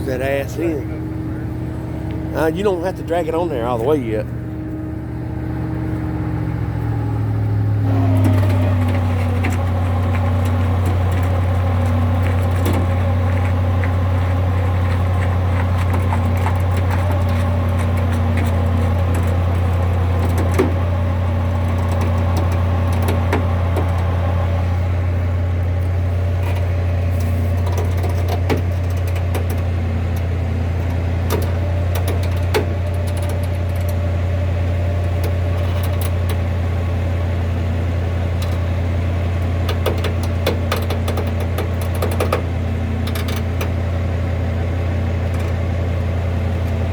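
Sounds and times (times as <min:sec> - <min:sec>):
truck engine droning: 0:00.0 - 0:46.9
sharp clicks and clanks: 0:21.5 - 0:24.1, 0:27.5 - 0:34.0, 0:39.6 - 0:43.8.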